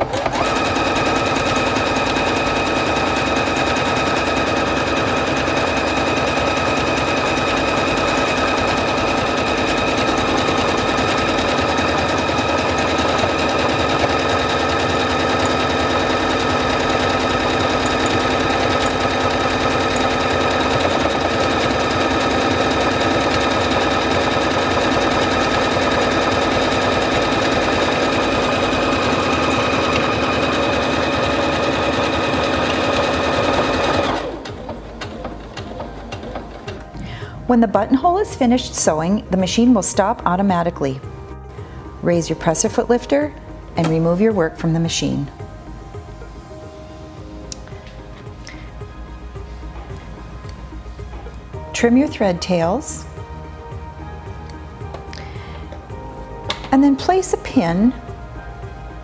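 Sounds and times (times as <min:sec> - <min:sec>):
sewing machine needle clatter: 0:00.0 - 0:37.0
sewing machine motor whine: 0:00.0 - 0:37.2.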